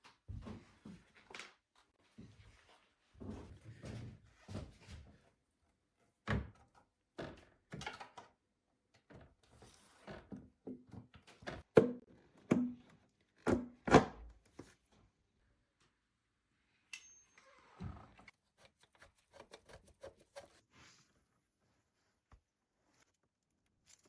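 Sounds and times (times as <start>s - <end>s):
tools knocking and clunking: 11.7s - 12.9s, 13.5s - 14.2s.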